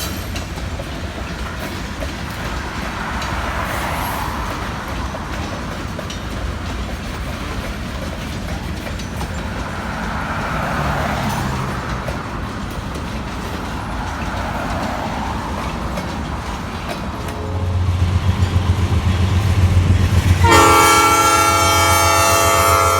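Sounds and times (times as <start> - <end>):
diesel locomotive engine drone: 0.0 - 22.9
freight train rumbling on rails: 0.0 - 22.9
train air horn: 17.3 - 18.0, 20.3 - 22.9.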